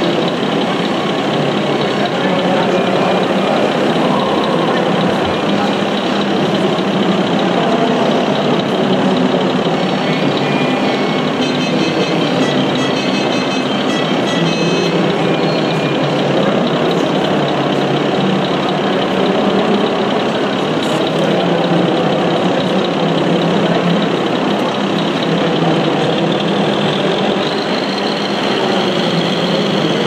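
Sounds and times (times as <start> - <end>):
faint high beeps: 0.0 - 7.7, 8.6 - 16.8
model truck engines running: 0.0 - 30.0.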